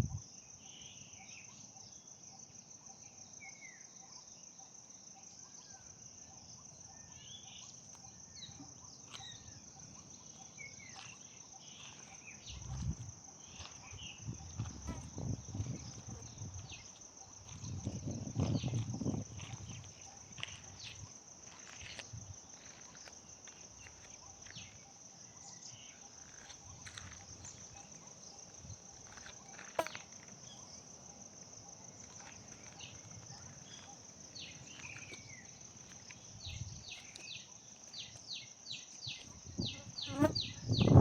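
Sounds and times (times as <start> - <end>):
insect drone: 0.0 - 41.0.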